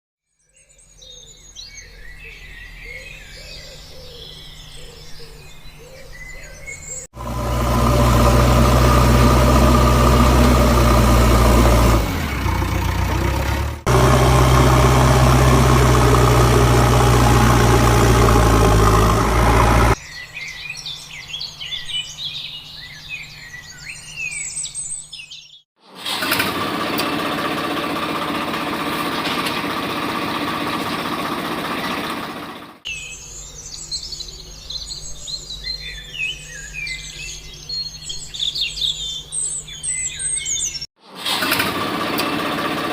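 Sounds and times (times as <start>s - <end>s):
birds chirping: 0.3s - 25.7s, 32.9s - 40.9s
small electric motor humming: 7.2s - 20.0s.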